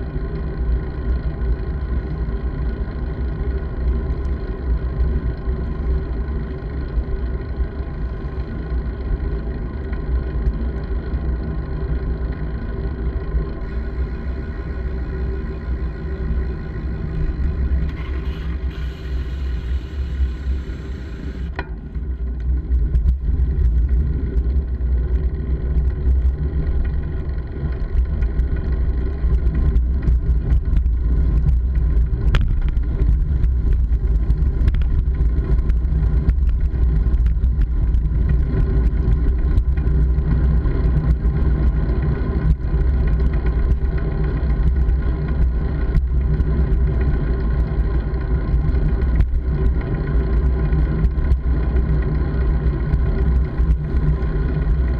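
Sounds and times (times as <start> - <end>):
wind and road noise rumble: 0.0 - 54.9.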